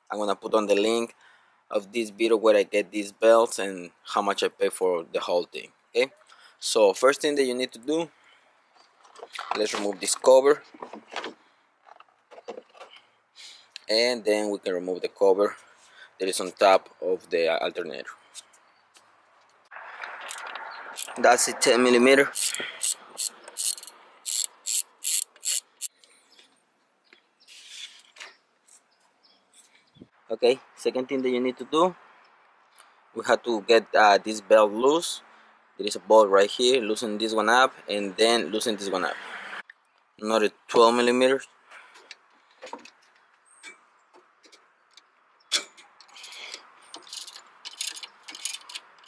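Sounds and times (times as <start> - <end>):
small metallic clicks: 18.3 - 21.2, 22.4 - 26.2, 42.0 - 49.0
socket ratchet clicking: 20.3 - 21.2, 22.4 - 25.9, 46.5 - 49.0.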